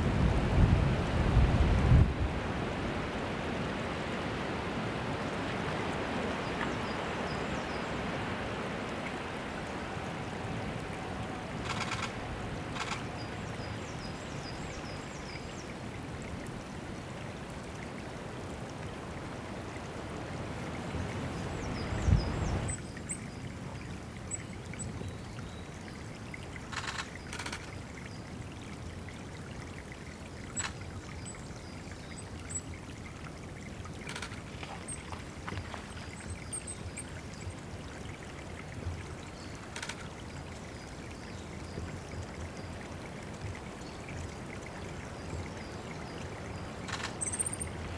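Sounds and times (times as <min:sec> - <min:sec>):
water trickling and splashing: 0:00.0 - 0:47.9
sharp ticks: 0:11.6 - 0:12.2, 0:12.8 - 0:13.1, 0:26.7 - 0:27.8, 0:34.1 - 0:34.4, 0:46.8 - 0:47.6
small birds calling and trilling: 0:45.0 - 0:47.9.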